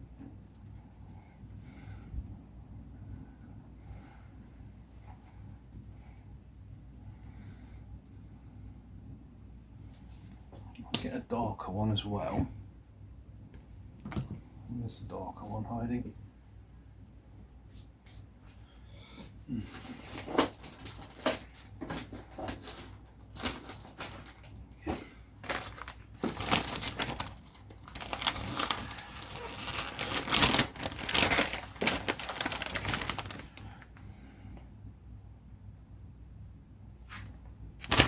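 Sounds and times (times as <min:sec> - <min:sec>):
crinkling: 0:19.5 - 0:34.1, 0:37.8 - 0:38.0
plastic containers shaken and rattling: 0:19.7 - 0:33.8, 0:37.8 - 0:38.0.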